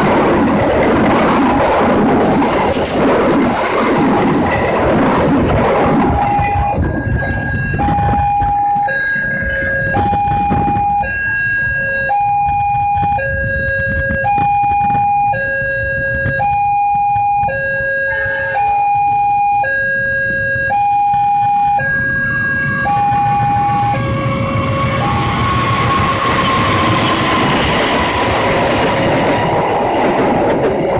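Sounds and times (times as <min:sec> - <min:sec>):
low rumble: 0:00.0 - 0:11.1, 0:17.9 - 0:30.9
level crossing two-tone alarm: 0:05.8 - 0:29.4.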